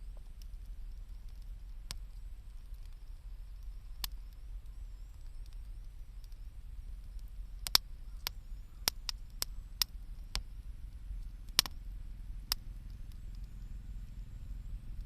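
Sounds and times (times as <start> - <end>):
bonfire crackling and popping: 0.0 - 14.2
low rumble of fire: 0.0 - 15.0.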